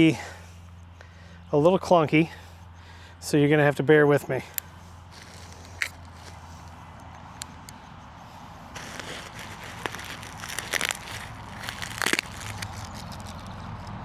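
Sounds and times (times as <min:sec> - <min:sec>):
packaging crackling and rustling: 0:04.5 - 0:14.0.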